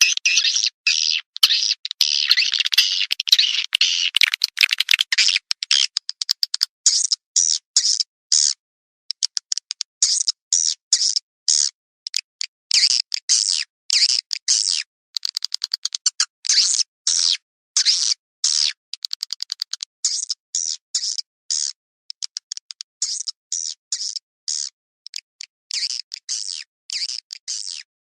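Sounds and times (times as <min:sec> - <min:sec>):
recorded swiftlet calls: 0:00.0 - 0:08.5.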